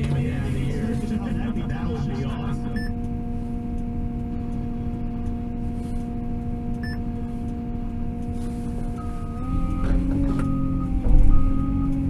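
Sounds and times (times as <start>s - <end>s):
diesel engine running: 0.0s - 12.0s
steady beep tone: 1.4s - 3.0s, 6.8s - 7.1s, 9.0s - 12.0s.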